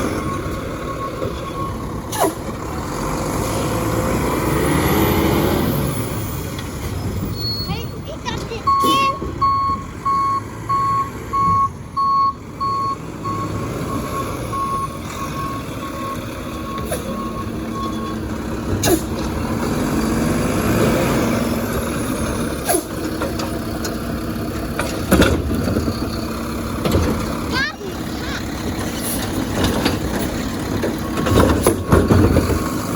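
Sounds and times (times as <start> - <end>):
truck engine running: 0.0 - 32.9
reverse alarm beeping: 8.6 - 18.2.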